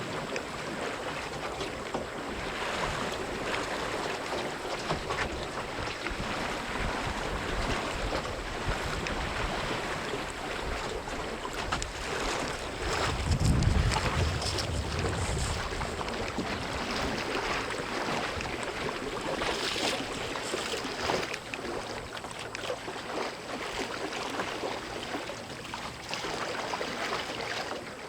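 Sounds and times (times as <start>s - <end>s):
water rushing along boat hull: 0.0s - 28.0s
wind buffeting microphone: 5.8s - 20.4s.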